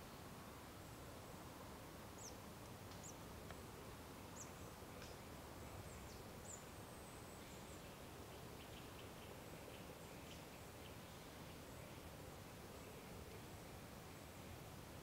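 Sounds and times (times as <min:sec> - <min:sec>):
small birds chirping: 0:02.2 - 0:03.2, 0:04.3 - 0:13.4.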